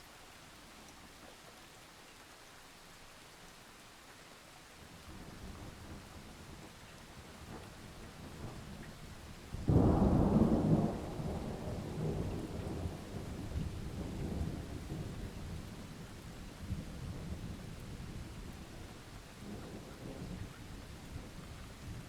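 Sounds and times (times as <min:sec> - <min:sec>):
steady rain: 0:00.0 - 0:22.0
thunder clap and rumble: 0:09.6 - 0:15.6.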